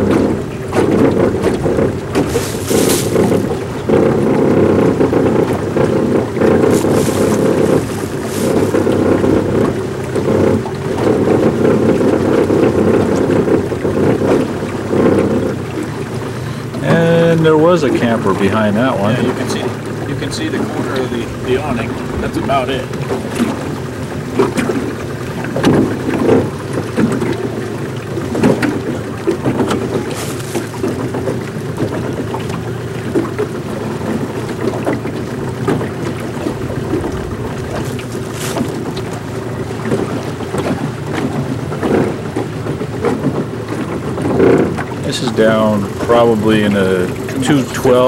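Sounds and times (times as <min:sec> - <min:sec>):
wind noise on microphone: 0:00.0 - 0:15.5, 0:19.6 - 0:27.5, 0:34.5 - 0:42.3
boat motor running: 0:00.0 - 0:48.0.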